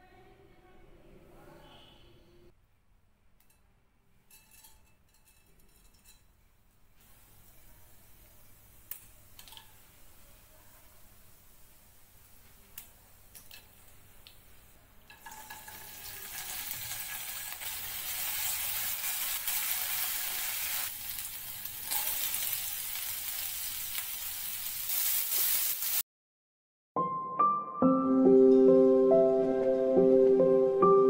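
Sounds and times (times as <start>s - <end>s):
spatula stirring: 4.3s - 6.4s
hot oil sizzling: 7.0s - 26.0s.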